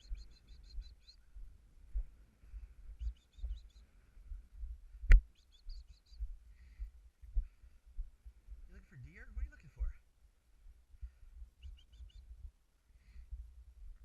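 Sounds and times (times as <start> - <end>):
small bird chirping: 0.0 - 1.4, 2.9 - 3.9, 5.1 - 6.8, 11.6 - 12.4.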